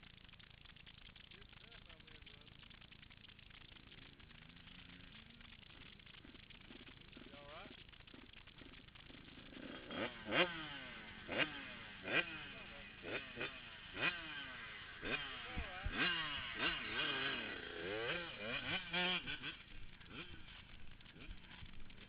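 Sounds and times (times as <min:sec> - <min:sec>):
dirt bikes revving: 0:03.8 - 0:22.0.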